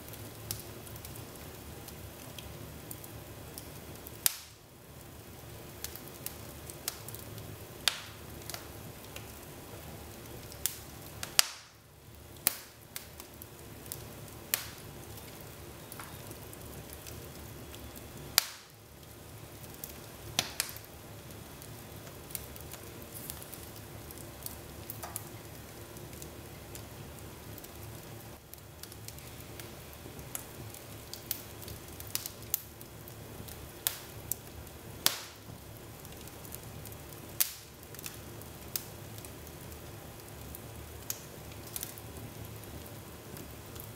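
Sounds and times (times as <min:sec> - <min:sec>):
wood fire crackling: 0:00.0 - 0:43.9
sharp pops of fire: 0:02.2 - 0:04.6, 0:05.8 - 0:07.2, 0:07.8 - 0:09.4, 0:10.2 - 0:25.6, 0:28.5 - 0:32.8, 0:33.5 - 0:34.4, 0:35.0 - 0:36.4, 0:37.1 - 0:39.3, 0:41.0 - 0:42.4.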